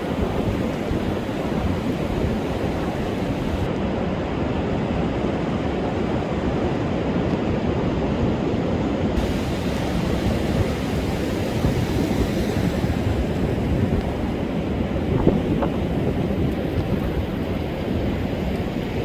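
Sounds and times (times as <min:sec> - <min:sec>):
heavy surf breaking on beach: 0:00.0 - 0:19.0
wind buffeting microphone: 0:00.0 - 0:19.0.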